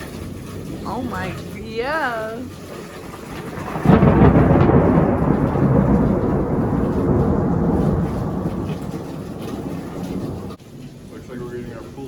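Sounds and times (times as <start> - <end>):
rain falling: 0.0 - 12.0
thunder crack and rumble: 2.4 - 12.0.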